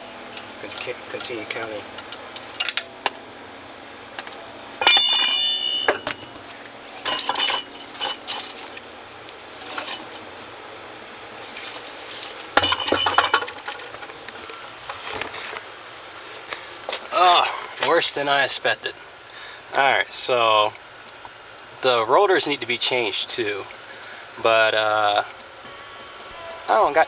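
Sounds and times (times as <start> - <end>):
metal clinking and clanking: 4.8 - 8.9, 9.6 - 10.4, 12.6 - 14.2.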